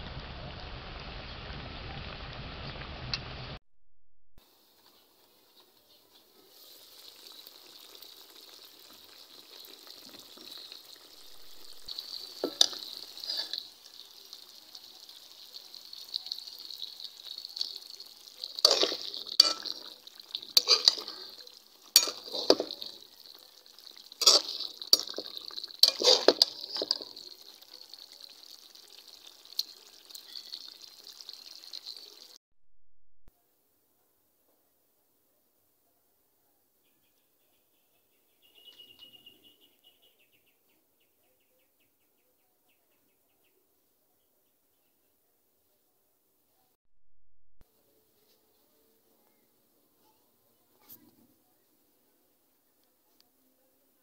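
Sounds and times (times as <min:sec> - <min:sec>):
curry sizzling in a metal pan: 0:04.5 - 0:32.4
metal spatula scraping and stirring: 0:09.0 - 0:14.4, 0:16.0 - 0:27.7.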